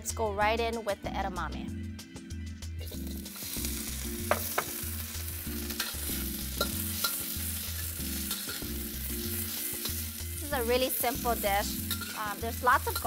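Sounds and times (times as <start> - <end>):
pods sizzling in hot oil: 2.8 - 13.0
spatula clicking against wok: 11.8 - 12.2.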